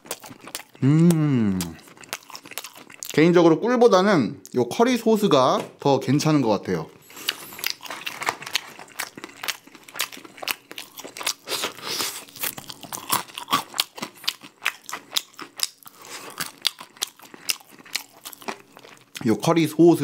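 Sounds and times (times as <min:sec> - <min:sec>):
crunching and chewing crispy chicken: 0:00.0 - 0:03.3, 0:07.0 - 0:20.0.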